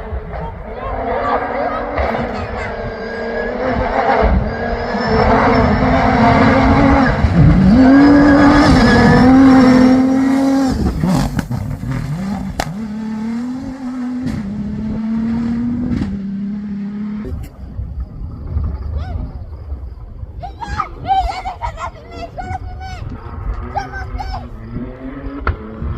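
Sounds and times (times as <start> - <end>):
vehicle engine passing at speed: 0.0 - 17.6, 23.3 - 25.9.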